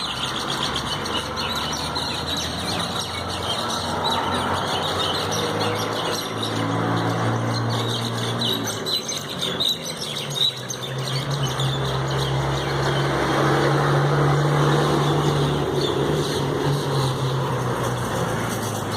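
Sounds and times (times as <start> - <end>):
mynas chirping and squawking: 0.0 - 13.2.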